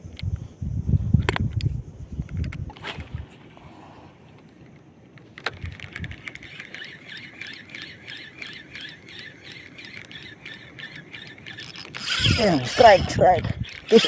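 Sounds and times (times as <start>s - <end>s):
fishing reel click: 5.4s - 14.0s
fishing reel cranking whir: 5.5s - 14.0s.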